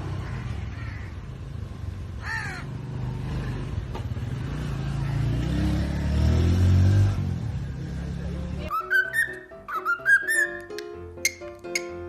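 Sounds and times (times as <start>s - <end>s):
parrot squawk: 8.7s - 12.0s.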